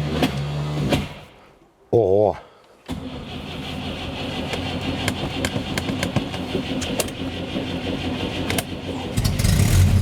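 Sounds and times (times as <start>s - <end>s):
starter motor cranking engine: 3.0s - 10.0s.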